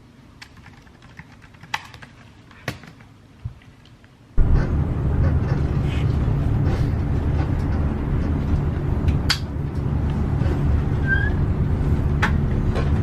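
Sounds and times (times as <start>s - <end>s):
subway train rumbling: 4.4s - 13.0s
brief squeak: 11.0s - 11.4s.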